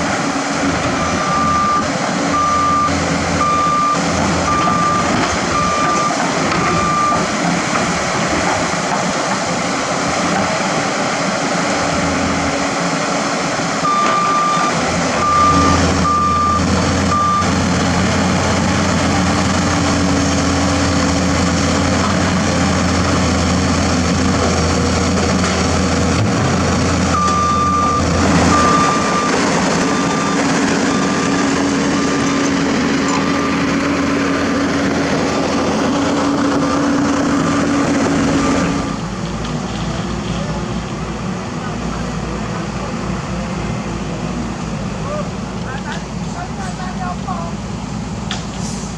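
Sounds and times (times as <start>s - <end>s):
heavy diesel machinery running: 0.0s - 48.9s
reversing alarm beeping: 0.9s - 7.3s, 13.8s - 17.8s, 27.1s - 34.5s, 35.3s - 39.1s.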